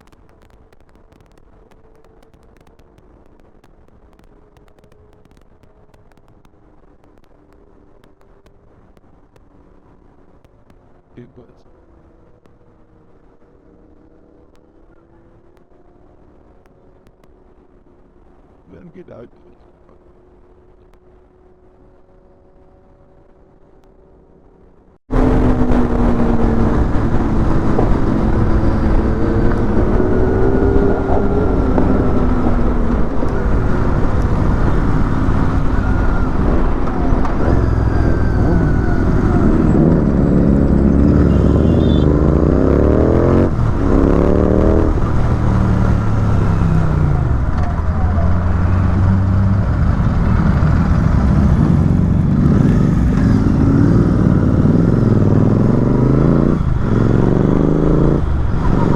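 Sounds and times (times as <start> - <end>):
motorcycle engine revving: 21.3 - 58.9.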